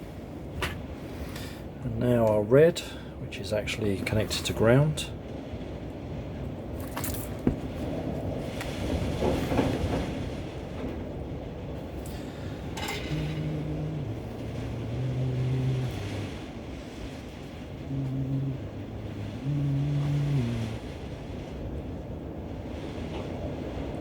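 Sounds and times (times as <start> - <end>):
rushing wind: 0.0 - 24.0
person humming: 13.0 - 16.3, 17.8 - 20.8.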